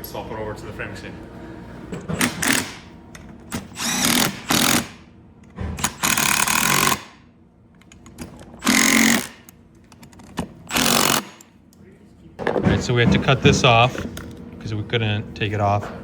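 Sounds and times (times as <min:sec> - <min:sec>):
impact wrench hammering: 0:02.0 - 0:02.9, 0:03.5 - 0:05.1, 0:05.8 - 0:07.3, 0:08.0 - 0:09.6, 0:10.4 - 0:11.6.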